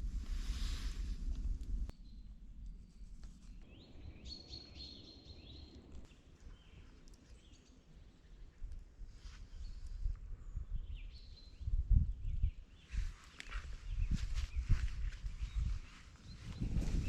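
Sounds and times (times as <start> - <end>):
low steady rumble: 0.0 - 4.1.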